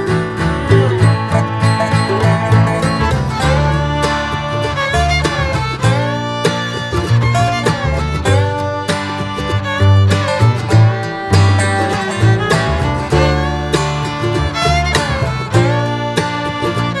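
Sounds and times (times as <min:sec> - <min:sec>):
upbeat country music: 0:00.0 - 0:17.0.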